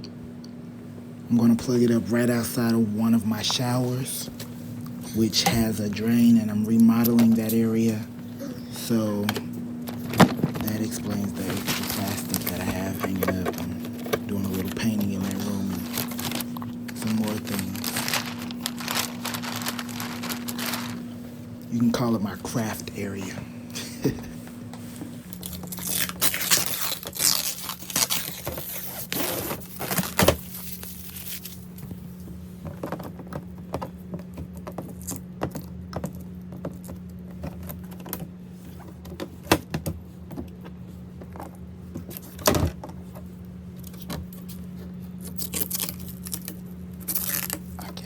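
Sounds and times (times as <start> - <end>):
steady low hum: 0.0 - 48.0
plastic wrapping crinkling: 6.7 - 23.2, 25.3 - 31.8, 43.8 - 48.0.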